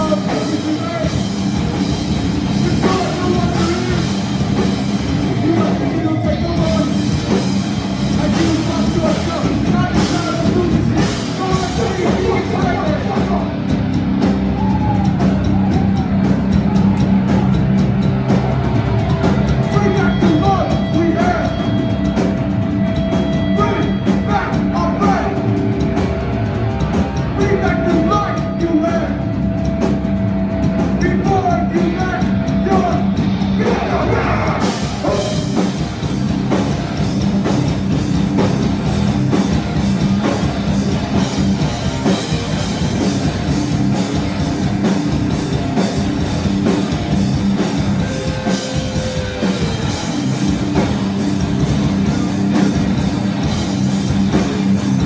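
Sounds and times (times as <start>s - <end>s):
distorted guitars: 0.0s - 55.0s
drums: 0.0s - 55.0s
person shouting vocals: 33.6s - 35.4s.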